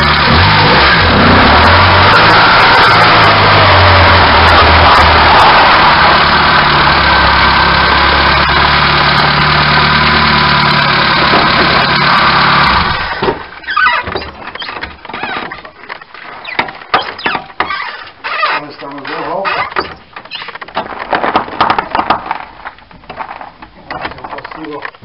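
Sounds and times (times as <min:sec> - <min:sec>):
car engine: 0:00.0 - 0:25.0
road noise: 0:00.0 - 0:25.0
rustling: 0:13.2 - 0:25.0.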